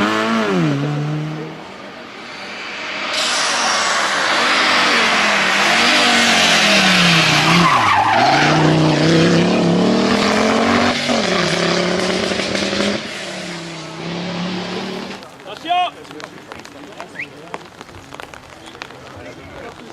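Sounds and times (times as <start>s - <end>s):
rally car engine: 0.0s - 15.4s
tyres sliding hiss: 1.8s - 6.8s.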